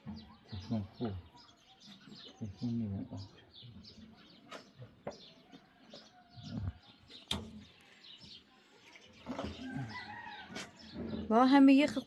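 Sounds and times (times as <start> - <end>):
birds chirping: 0.0 - 12.0
sharp click: 7.3 - 7.5.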